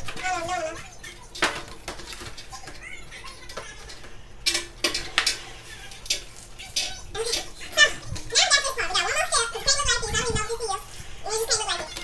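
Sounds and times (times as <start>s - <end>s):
paper crackling and rustling: 0.0s - 12.0s.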